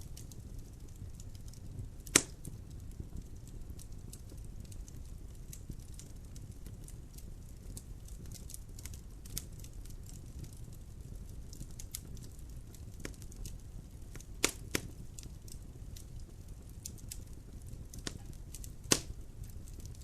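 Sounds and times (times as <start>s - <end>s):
low rumble of fire: 0.0s - 20.0s
wood fire crackling: 0.0s - 20.0s
loud sharp pop of burning log: 2.0s - 2.5s, 14.4s - 14.9s, 17.9s - 19.9s.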